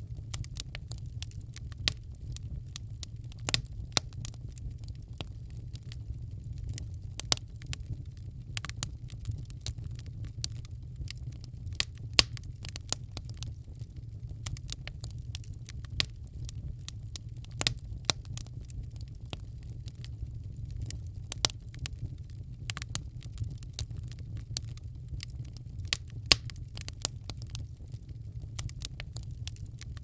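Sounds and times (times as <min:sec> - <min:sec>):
low rumble of burning fire: 0:00.0 - 0:30.0
wood fire crackling and popping: 0:00.0 - 0:30.0.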